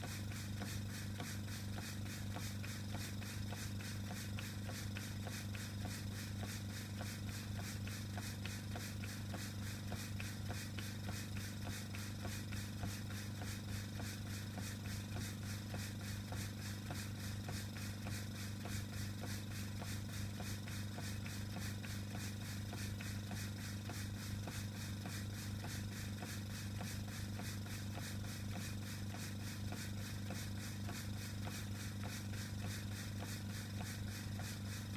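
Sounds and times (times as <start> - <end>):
air compressor humming: 0.0 - 34.9
model steam engine exhaust beat: 0.0 - 34.9.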